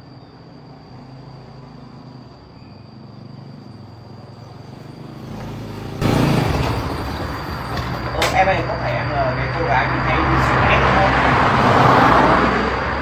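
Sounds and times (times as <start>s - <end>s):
high-pitched insect trill: 0.0s - 13.0s
vehicle engine approaching: 3.0s - 13.0s.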